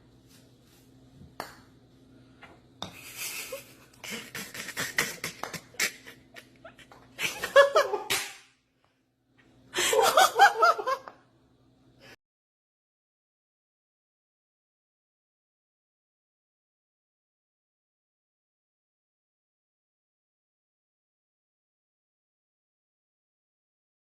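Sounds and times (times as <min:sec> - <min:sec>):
people laughing: 0:03.0 - 0:08.1, 0:09.8 - 0:11.1.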